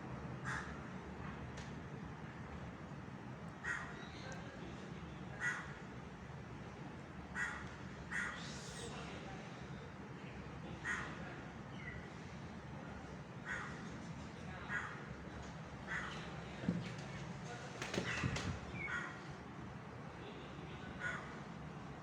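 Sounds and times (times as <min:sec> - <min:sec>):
low background hum: 0:00.0 - 0:22.0
crow cawing: 0:03.6 - 0:04.0, 0:05.4 - 0:05.8, 0:07.4 - 0:08.4, 0:13.4 - 0:13.8.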